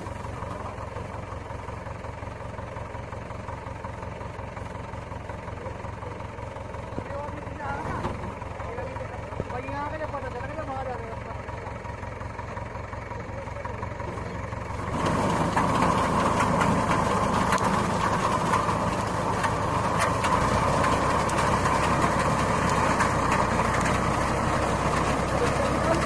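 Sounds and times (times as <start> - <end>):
tractor engine running: 0.0 - 26.0
reaper clattering and rattling: 14.0 - 26.0.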